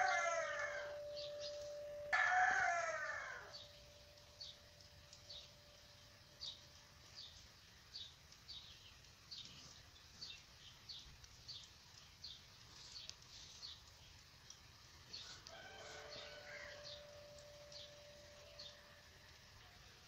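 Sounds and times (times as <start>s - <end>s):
distant rooster crowing: 0.0s - 3.9s, 15.2s - 19.1s
faint bird chirps: 0.0s - 14.2s, 15.1s - 20.0s.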